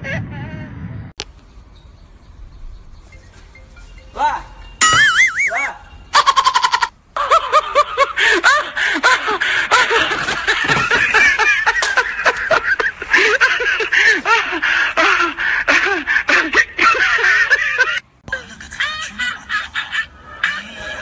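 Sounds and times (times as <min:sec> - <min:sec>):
laugh track: 0:04.8 - 0:21.0.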